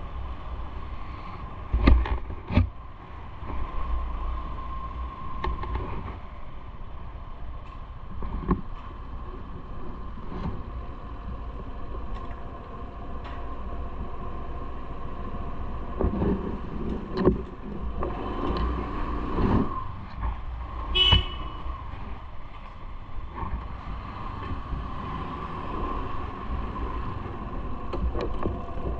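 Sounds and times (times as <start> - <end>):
road traffic: 0.0 - 28.9
short high-pitched toot: 21.0 - 21.6.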